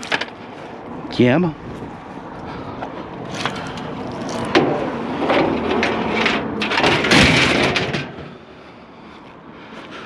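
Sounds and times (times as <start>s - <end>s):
scraping and rattling: 3.3s - 8.4s
scrap knocking and clattering: 4.5s - 8.4s.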